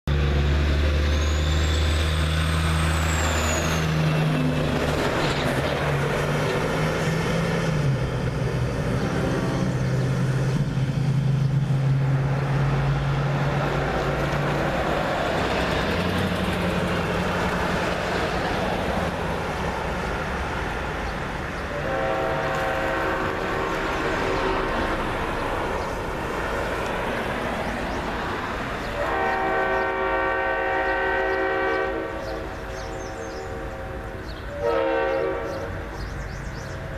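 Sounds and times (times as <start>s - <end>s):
locomotive engines droning: 0.1s - 36.9s
train rumbling on rails: 0.1s - 36.9s
locomotive air horn: 21.7s - 24.9s, 28.9s - 35.9s.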